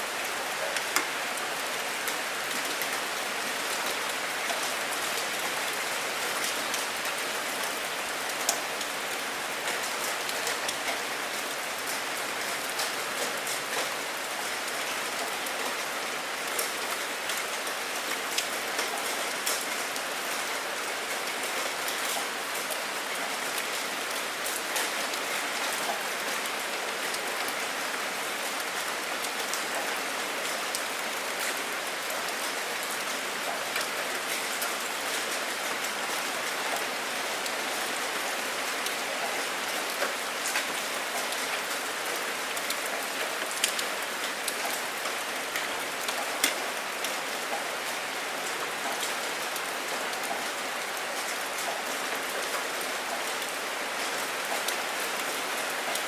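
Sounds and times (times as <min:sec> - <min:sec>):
steady rain falling: 0:00.0 - 0:56.0
raindrops ticking on hard surface: 0:39.2 - 0:47.9.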